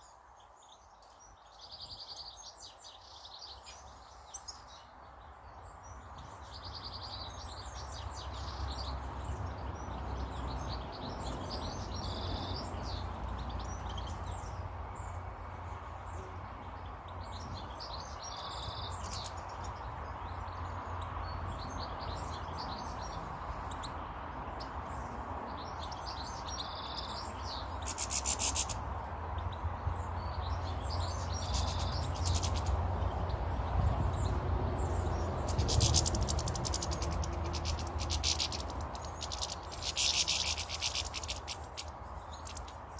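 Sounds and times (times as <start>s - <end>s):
birds chirping and calling: 5.9s - 15.2s, 16.0s - 42.9s.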